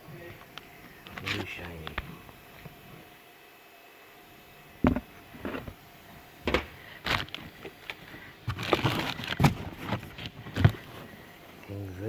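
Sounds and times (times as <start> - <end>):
engine parts knocking on workbench: 4.8 - 5.8, 6.4 - 6.7
packaging rustling: 6.5 - 11.2.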